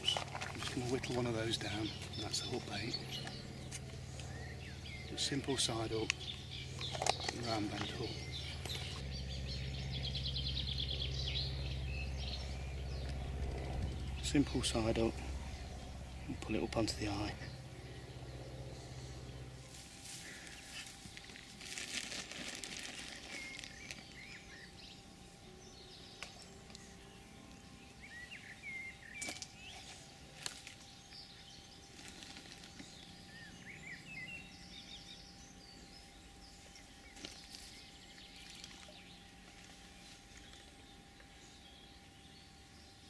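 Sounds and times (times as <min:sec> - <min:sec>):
faint outdoor background: 0:00.0 - 0:43.0
small birds chirping: 0:00.0 - 0:43.0
rustling: 0:19.6 - 0:24.2, 0:31.8 - 0:33.1.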